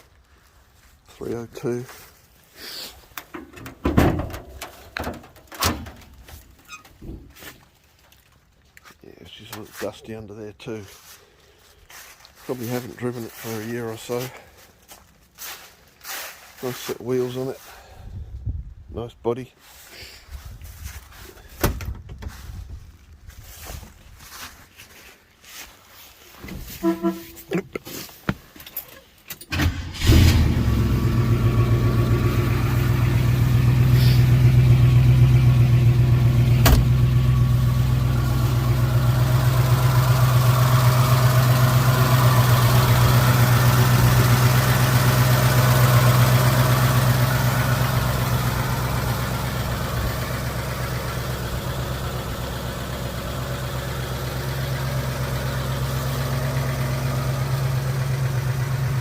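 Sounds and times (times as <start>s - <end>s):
car engine starting and idling: 3.1s - 6.9s, 29.3s - 59.0s.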